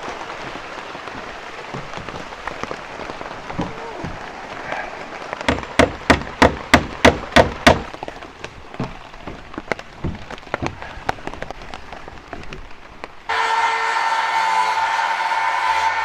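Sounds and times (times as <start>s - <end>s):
light taps and drips: 0.0s - 6.6s, 7.8s - 13.2s
rain pattering on tarps: 0.0s - 16.0s
hammer blows: 13.3s - 16.0s.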